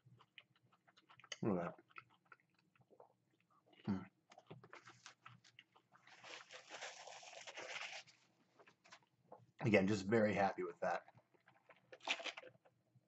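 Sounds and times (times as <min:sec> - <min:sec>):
wet chewing clicks: 0:00.0 - 0:06.1.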